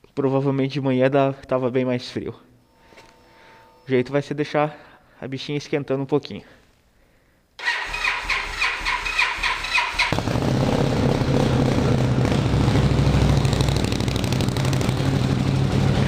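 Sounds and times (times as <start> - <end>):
starter motor cranking: 7.6 - 10.3
motorcycle engine idling: 7.6 - 16.0.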